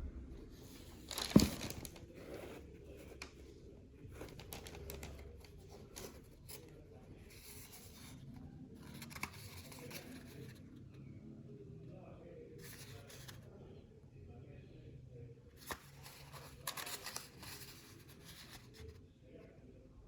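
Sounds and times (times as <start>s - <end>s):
paper packaging crinkling: 1.0s - 2.1s.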